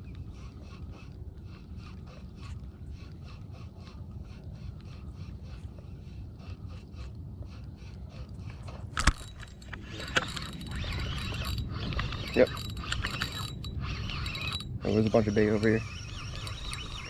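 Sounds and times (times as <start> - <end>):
steady low rumble: 0.0 - 14.9
fishing reel cranking: 8.9 - 17.0.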